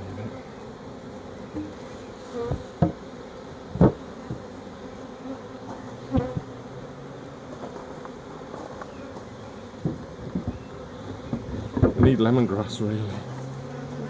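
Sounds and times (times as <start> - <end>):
bee swarm buzzing: 0.0 - 14.0
sharp knocks: 2.5 - 3.0, 3.7 - 4.4.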